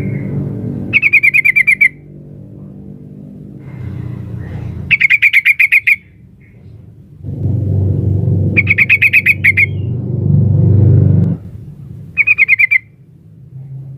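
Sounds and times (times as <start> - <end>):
low steady rumble: 0.0 - 5.0, 6.0 - 13.9
bird chattering call: 0.9 - 2.0, 4.9 - 6.6, 8.6 - 9.9, 12.2 - 12.9.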